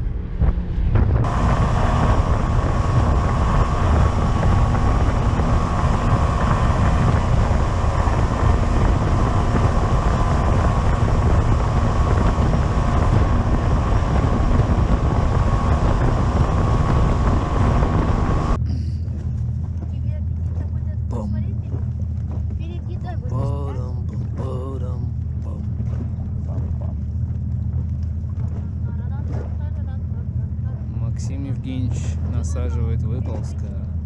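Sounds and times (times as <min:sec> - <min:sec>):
engine drone: 0:00.0 - 0:34.0
wind noise on microphone: 0:00.0 - 0:34.0.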